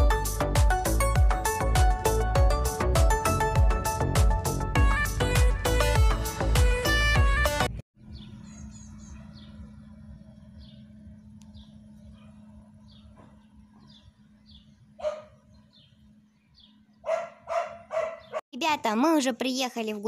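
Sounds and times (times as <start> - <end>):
music: 0.0 - 7.8
birds chirping: 8.0 - 18.4
dog barking: 9.0 - 9.5, 12.0 - 14.0, 15.0 - 15.4, 17.0 - 18.4.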